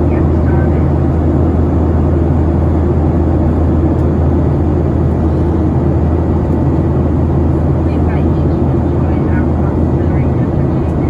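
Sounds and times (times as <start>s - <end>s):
jet engine cabin roar: 0.0s - 11.0s.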